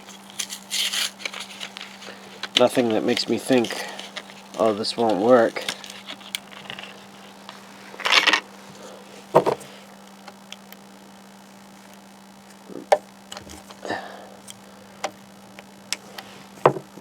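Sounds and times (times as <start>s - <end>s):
hands rustling: 0.0s - 9.8s
faint steady hum: 0.0s - 17.0s.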